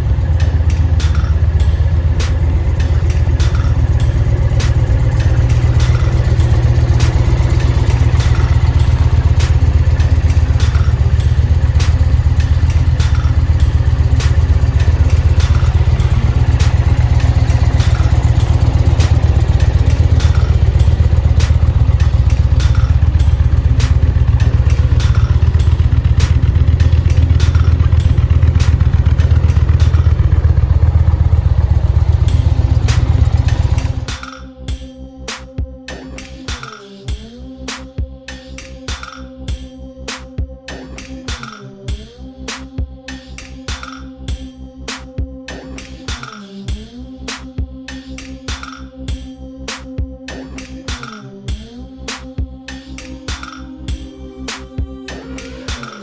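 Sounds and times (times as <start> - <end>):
motorcycle engine idling: 0.0 - 34.2.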